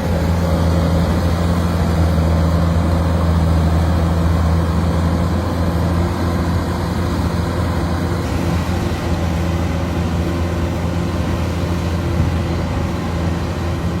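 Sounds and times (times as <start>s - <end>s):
combine harvester diesel engine: 0.0s - 14.0s.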